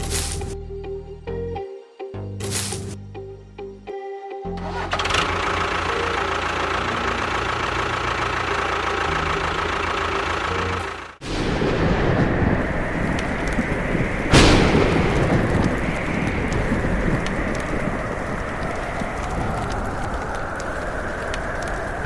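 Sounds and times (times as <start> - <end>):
loud rush: 11.2 - 22.0.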